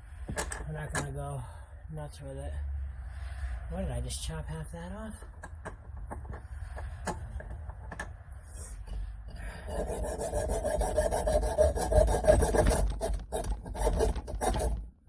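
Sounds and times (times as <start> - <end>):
hand tool rasping on edge: 8.6 - 14.8.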